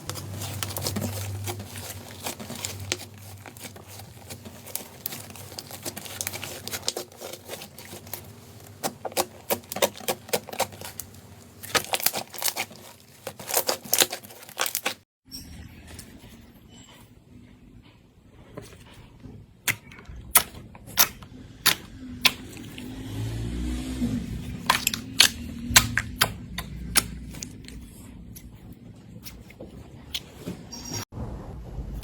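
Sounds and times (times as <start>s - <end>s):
slime squished by hand crackling: 0.0s - 15.0s.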